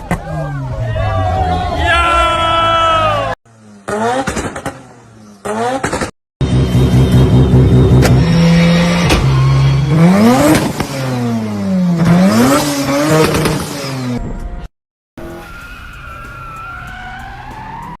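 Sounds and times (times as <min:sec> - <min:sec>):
rotary engine revving: 0:03.5 - 0:14.2.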